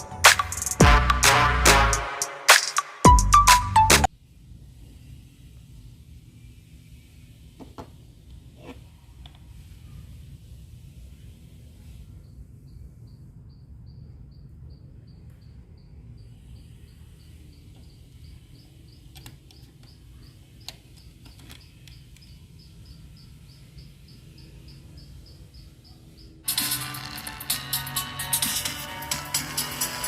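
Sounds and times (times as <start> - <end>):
insect chirping: 12.2 - 26.7.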